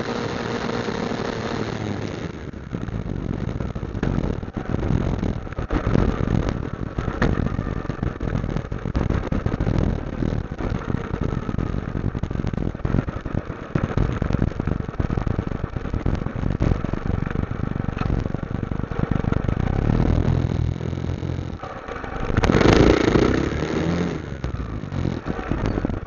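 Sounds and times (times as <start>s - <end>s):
motorcycle engine running: 0.0s - 26.0s
wind buffeting microphone: 2.4s - 26.0s.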